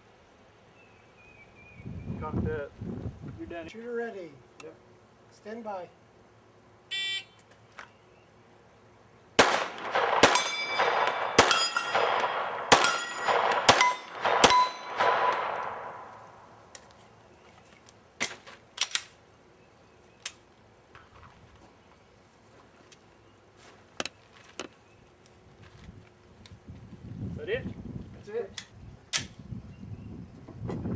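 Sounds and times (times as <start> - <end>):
gunshots: 9.4 - 16.2
steel target plate ringing: 10.2 - 16.2.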